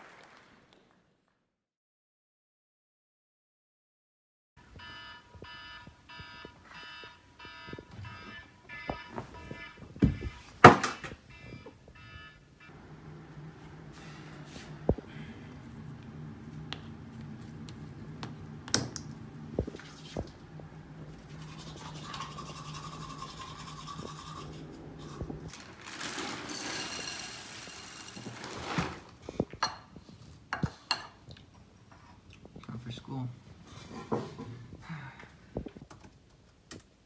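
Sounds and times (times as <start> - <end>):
toothbrush brushing teeth: 21.2 - 25.5.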